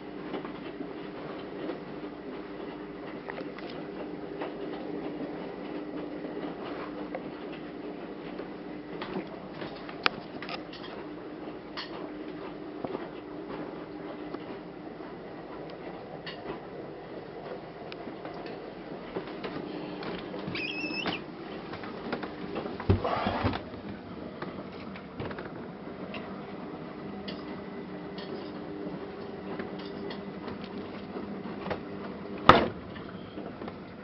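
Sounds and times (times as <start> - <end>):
fridge door squeak: 20.4 - 21.3.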